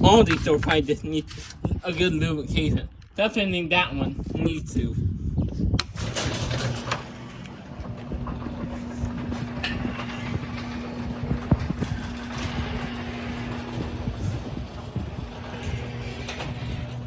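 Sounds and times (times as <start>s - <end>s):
garage door motor humming: 5.6s - 17.0s
garage door clicks and rattles: 5.7s - 17.0s.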